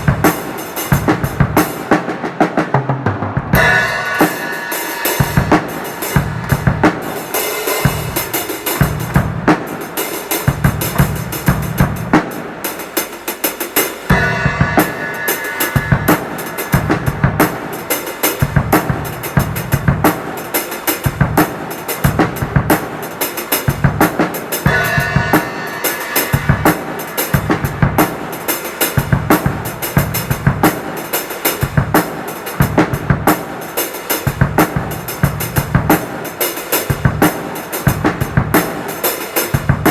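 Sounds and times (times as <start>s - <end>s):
drum kit groove: 0.0s - 39.9s
cymbals ringing: 3.6s - 11.8s, 13.9s - 20.8s, 24.4s - 31.4s.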